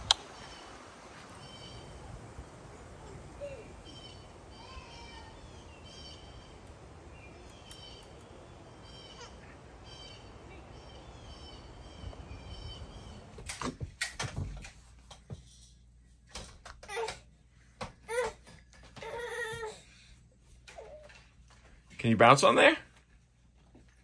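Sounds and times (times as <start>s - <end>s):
bird calling: 2.6s - 13.4s.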